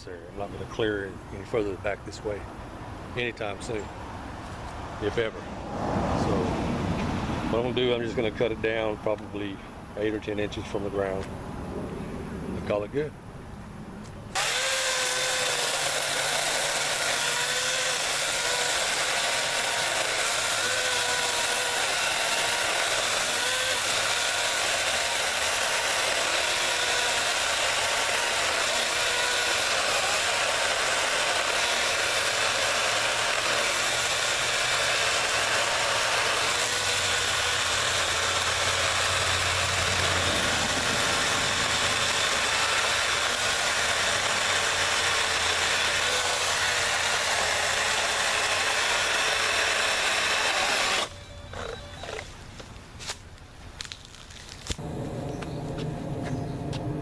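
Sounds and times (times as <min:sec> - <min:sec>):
chainsaw cutting stump: 0:14.3 - 0:53.2, 0:53.8 - 0:57.0.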